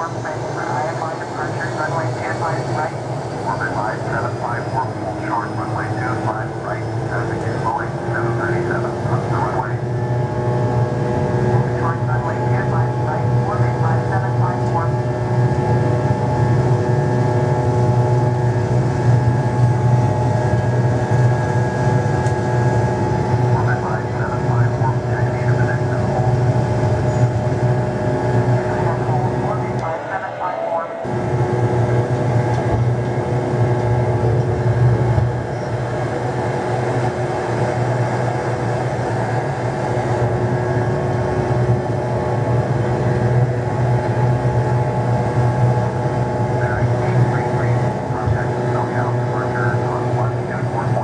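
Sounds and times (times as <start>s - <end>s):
jet engines running: 0.0s - 51.0s
faint steady tones: 22.2s - 33.9s.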